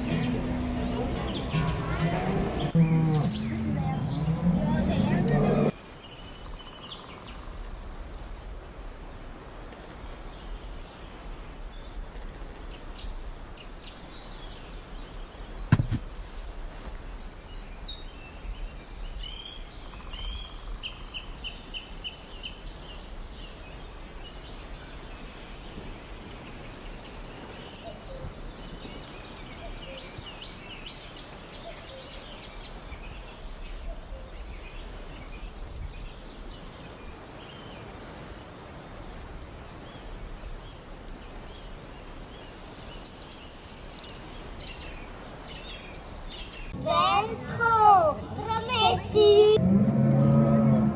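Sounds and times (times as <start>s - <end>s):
low background rumble: 0.0s - 5.7s, 46.8s - 50.9s
small birds chirping: 0.0s - 7.6s, 25.2s - 49.6s.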